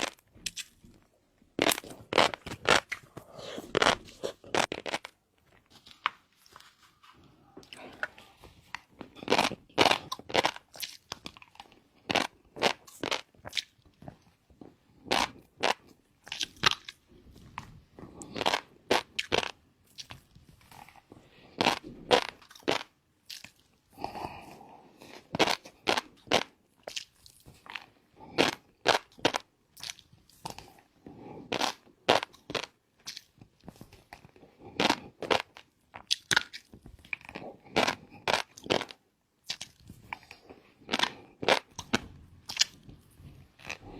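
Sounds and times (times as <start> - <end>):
person chewing crunchy food: 0.0 - 43.9.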